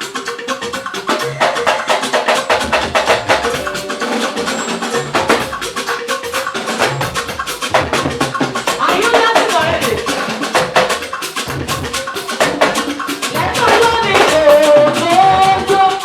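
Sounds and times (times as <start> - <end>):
live band playing gospel music: 1.1 - 7.0.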